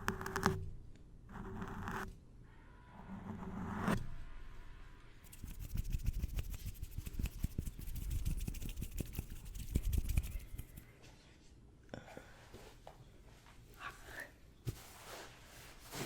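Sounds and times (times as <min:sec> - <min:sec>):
scratching and tapping on hard object: 0:00.0 - 0:00.7, 0:05.3 - 0:10.9.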